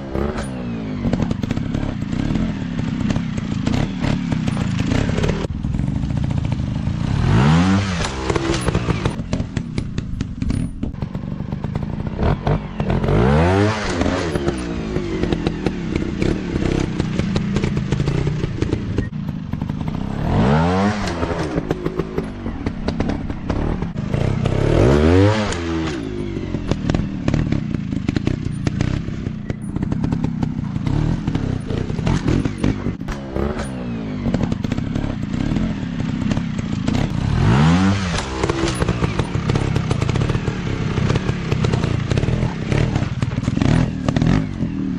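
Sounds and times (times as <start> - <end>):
dirt bike engines revving: 0.0 - 44.9
rattling clatter: 8.0 - 13.1, 13.8 - 44.6.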